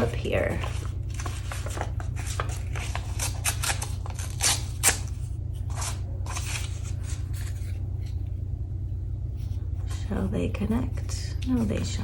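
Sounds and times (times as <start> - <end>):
steady low hum: 0.0 - 12.0
scissors snipping paper: 1.7 - 6.8.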